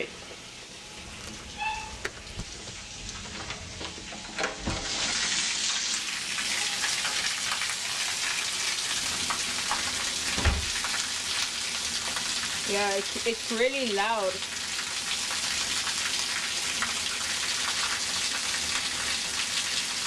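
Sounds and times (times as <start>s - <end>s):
heavy rain pouring: 12.7s - 14.4s.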